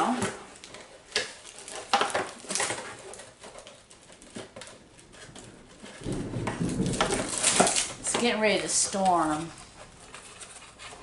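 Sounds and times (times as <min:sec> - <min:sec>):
packaging clicks and knocks: 0:00.0 - 0:11.0
packaging rustling: 0:00.0 - 0:11.0
distant thunder rumble: 0:05.0 - 0:10.0.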